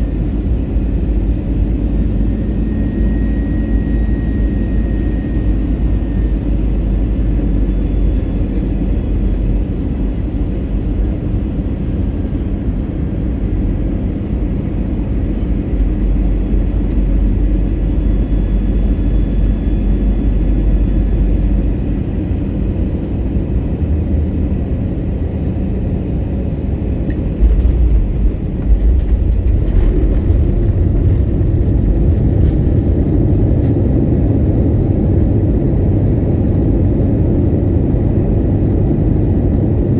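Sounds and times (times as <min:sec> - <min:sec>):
airliner cabin rumble: 0:00.0 - 0:39.9
wheels touching down thumps: 0:27.4 - 0:33.2.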